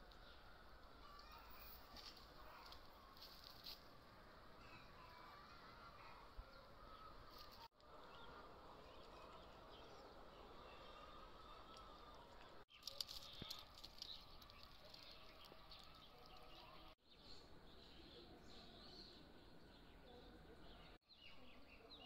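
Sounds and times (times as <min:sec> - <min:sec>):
faint outdoor ambience: 0:00.0 - 0:22.0
small bird chirps: 0:12.7 - 0:22.0.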